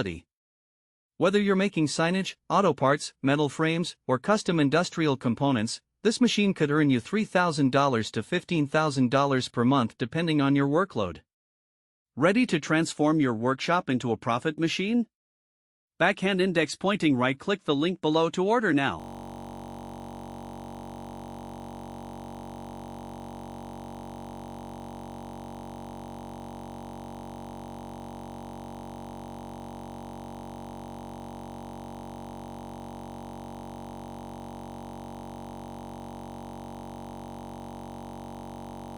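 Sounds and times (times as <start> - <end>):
sustained synthesizer chord: 19.0 - 38.9.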